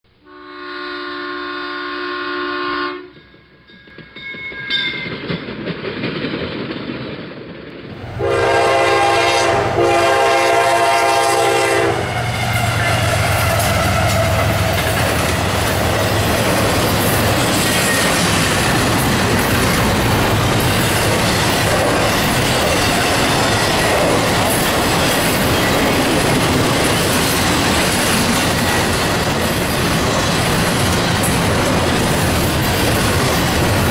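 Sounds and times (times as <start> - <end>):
chord of horn-like tones: 0.2 - 3.1, 8.1 - 12.9
locomotive air horn: 0.2 - 3.1, 8.1 - 14.5
steel wheels clattering on rail: 3.1 - 33.9.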